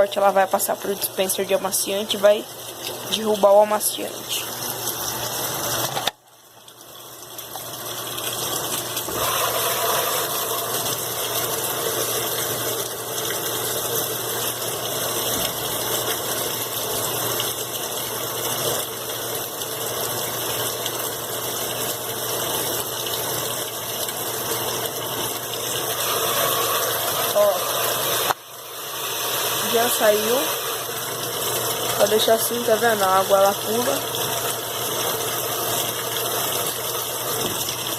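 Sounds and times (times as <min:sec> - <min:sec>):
water gushing into washing machine: 0:00.0 - 0:37.9.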